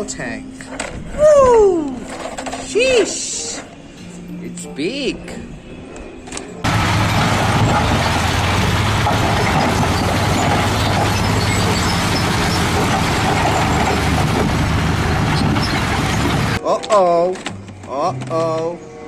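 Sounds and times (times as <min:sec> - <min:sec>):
recorded truck engine sound: 0:06.6 - 0:16.6.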